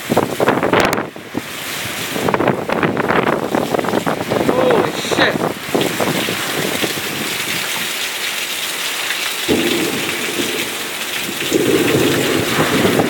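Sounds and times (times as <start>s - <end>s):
heavy rain pouring: 0.0s - 13.0s
thunder rumbling: 9.5s - 13.0s.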